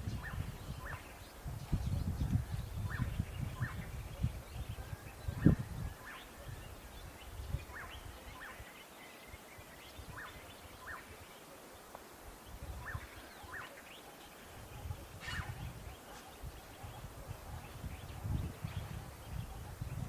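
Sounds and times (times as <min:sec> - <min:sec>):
faint bird calls: 0:10.0 - 0:20.0.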